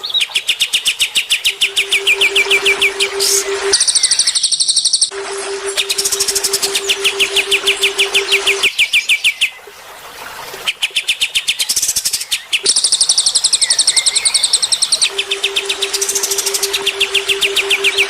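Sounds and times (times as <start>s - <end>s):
low pulsing hum: 1.5s - 4.2s, 5.1s - 8.7s, 15.0s - 18.0s.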